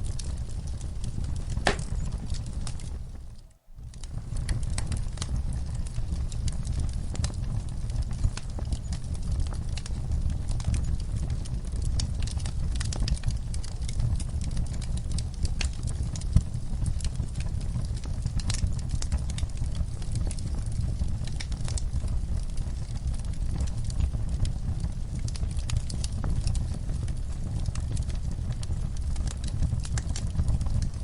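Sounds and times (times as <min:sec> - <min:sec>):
fire crackling and popping: 0:00.0 - 0:31.0
fire flames rumbling: 0:00.0 - 0:31.0.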